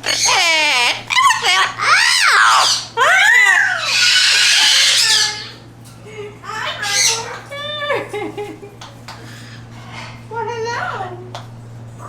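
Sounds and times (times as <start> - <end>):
parrot harsh squawk: 0.0 - 5.6, 6.6 - 7.5
parrots whistling calls: 0.0 - 5.7, 6.5 - 7.8, 9.1 - 10.3.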